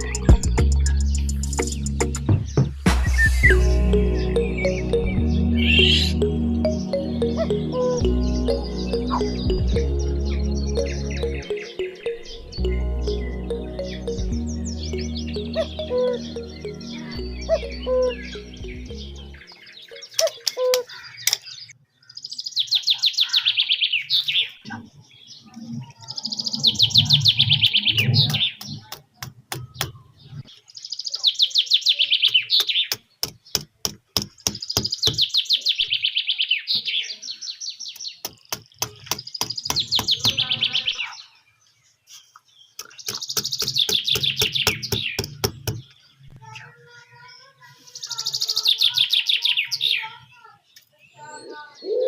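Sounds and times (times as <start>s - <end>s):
sharp evenly spaced clicks: 0.0s - 2.3s, 32.3s - 35.3s, 38.0s - 40.4s, 42.8s - 45.9s
bird singing rapid high trills: 0.0s - 21.3s.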